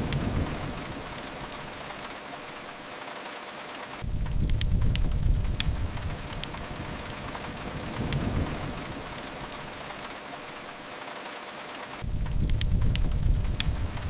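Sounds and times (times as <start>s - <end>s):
fireplace crackling pops: 0.0s - 14.0s
rain hissing: 0.0s - 14.0s
deep rumble: 4.0s - 9.9s, 12.0s - 14.0s
low rumble: 4.0s - 9.9s, 12.0s - 14.0s.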